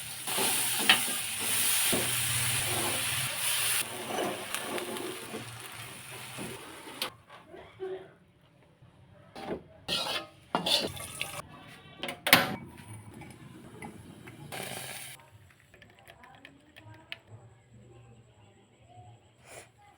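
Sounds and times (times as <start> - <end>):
utensil scraping: 9.9 - 11.4
utensils clinking against dishes: 9.9 - 11.4.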